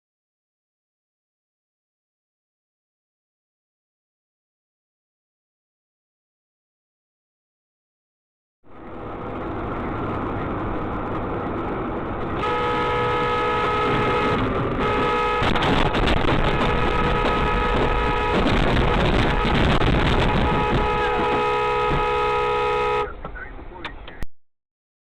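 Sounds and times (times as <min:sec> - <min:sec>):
car interior road noise: 0:08.7 - 0:24.2
car horn honking: 0:12.4 - 0:23.2.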